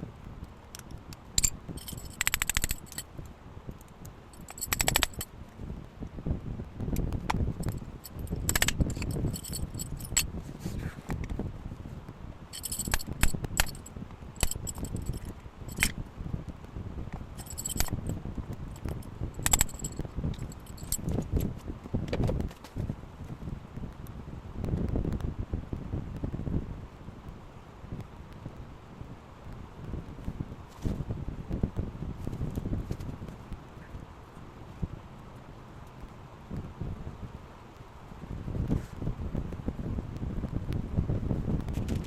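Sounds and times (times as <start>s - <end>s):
handling clicks and scraping: 0.7s - 5.3s, 6.9s - 11.4s, 12.5s - 16.0s, 17.1s - 22.8s, 41.7s - 42.0s
metal parts clinking: 1.4s - 3.1s, 4.4s - 5.3s, 7.6s - 10.3s, 12.6s - 16.0s, 17.4s - 18.2s, 18.8s - 21.0s.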